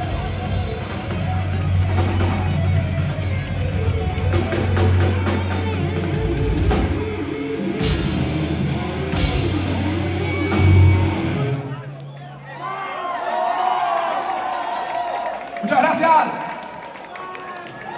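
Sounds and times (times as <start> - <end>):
heavy metal band playing: 0.0 - 11.9.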